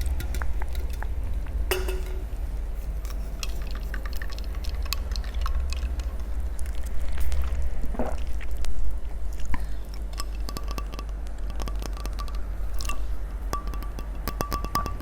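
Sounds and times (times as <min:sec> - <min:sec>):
low background hum: 0:00.0 - 0:15.0
wet mouth eating sounds: 0:03.4 - 0:14.3.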